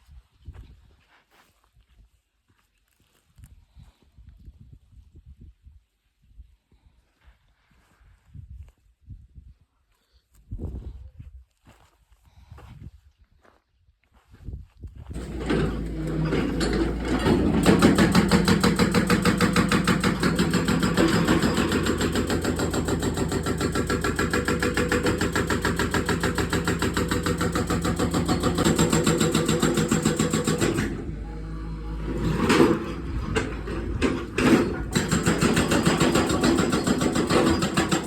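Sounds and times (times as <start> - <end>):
diesel engine running: 15.2 - 38.0.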